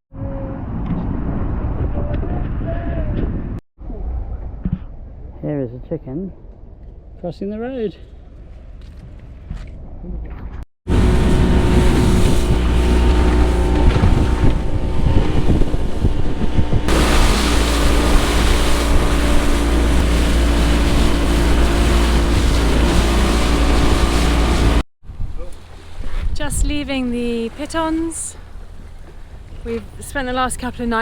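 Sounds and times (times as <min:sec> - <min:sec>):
wind buffeting microphone: 0:00.2 - 0:03.6, 0:10.9 - 0:31.0
water rushing past: 0:10.9 - 0:30.0
boat engine running: 0:10.9 - 0:31.0.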